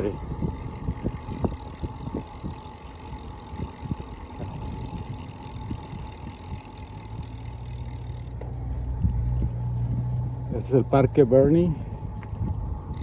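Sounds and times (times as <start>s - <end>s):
low engine hum: 0.0s - 13.0s
road and wind rumble: 0.0s - 13.0s
vehicle engine running: 0.0s - 13.0s.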